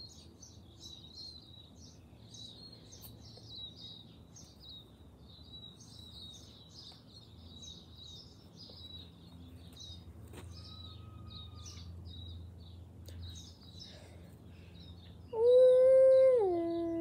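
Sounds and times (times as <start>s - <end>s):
low outdoor background rumble: 0.0s - 17.0s
small birds chirping: 0.0s - 17.0s.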